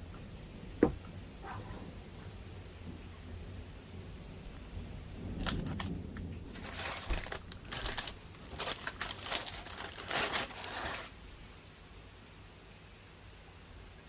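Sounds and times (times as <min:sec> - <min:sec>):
crinkling handling sounds: 0:05.2 - 0:11.4.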